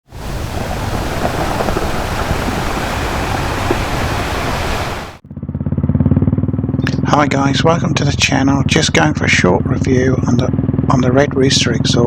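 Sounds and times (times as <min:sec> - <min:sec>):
loud steady rush of noise: 0:00.0 - 0:05.2
motorcycle engine idling: 0:05.2 - 0:12.0.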